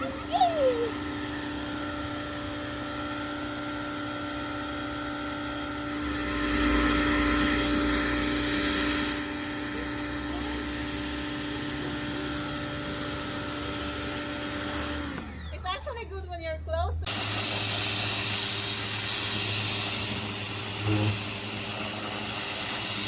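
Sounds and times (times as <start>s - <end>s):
pressure washer motor whine: 0.0s - 15.9s, 17.0s - 23.0s
water spray hissing: 5.7s - 15.0s, 17.1s - 23.0s.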